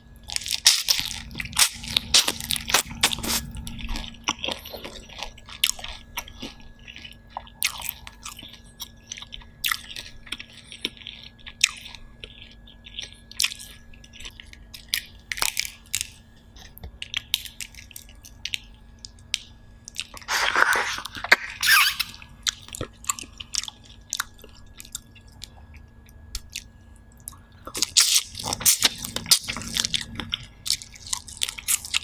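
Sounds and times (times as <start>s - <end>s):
chewing with soft crunches: 0.0s - 32.0s.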